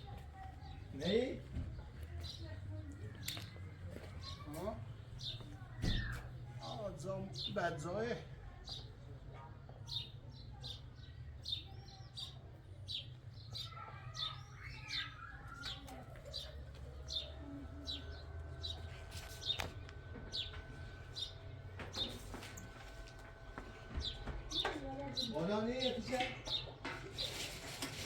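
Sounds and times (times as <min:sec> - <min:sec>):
bird chirping: 0:09.9 - 0:23.2.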